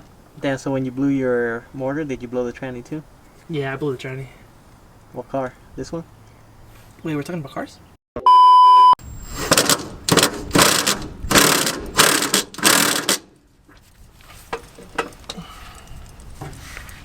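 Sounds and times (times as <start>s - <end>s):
ratchet wrench cranking: 10.6s - 13.2s.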